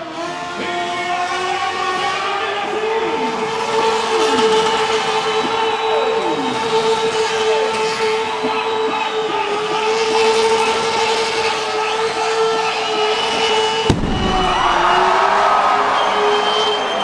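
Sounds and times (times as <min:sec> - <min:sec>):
loud bang: 0:13.9 - 0:15.7.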